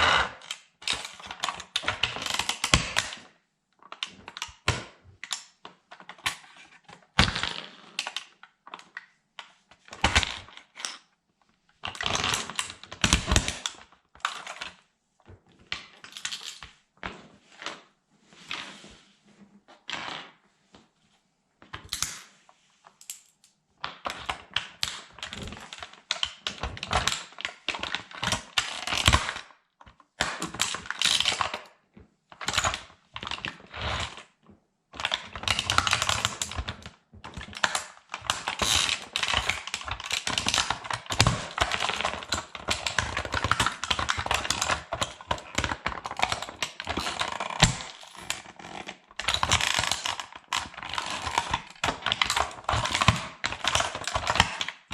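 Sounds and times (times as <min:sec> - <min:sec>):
plastic toy crackling and snapping: 0:23.0 - 0:29.4, 0:35.0 - 0:54.9.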